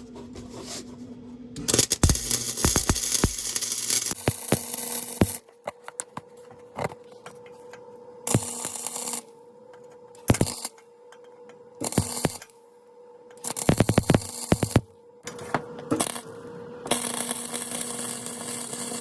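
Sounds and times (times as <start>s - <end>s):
welding crackle: 1.6s - 5.4s, 8.3s - 9.3s, 10.2s - 10.7s, 11.8s - 12.5s, 13.4s - 14.8s, 16.0s - 19.0s.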